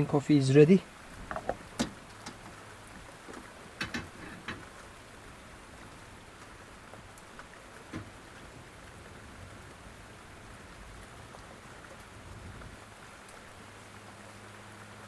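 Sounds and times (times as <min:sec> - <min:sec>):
heavy rain drumming on car: 0:00.1 - 0:15.0
light clicks and knocks: 0:01.2 - 0:04.9, 0:06.4 - 0:08.6.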